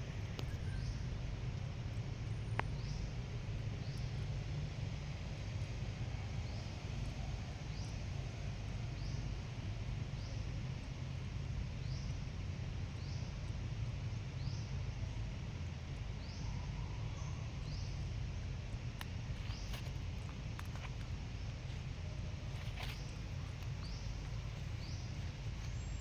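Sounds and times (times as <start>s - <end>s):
steady low rumble: 17.6s - 26.0s
bird chirping: 22.6s - 26.0s.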